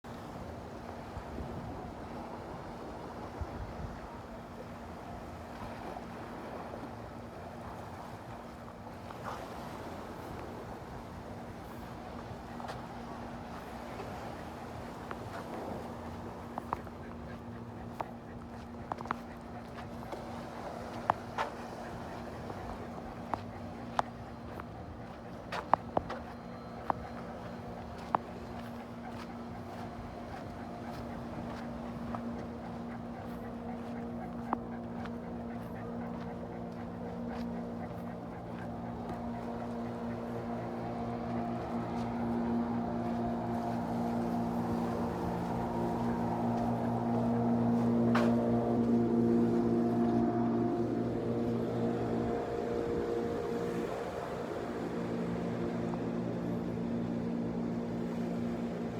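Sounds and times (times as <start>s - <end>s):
faint steady hum: 0.0s - 58.9s
wind: 0.0s - 58.9s.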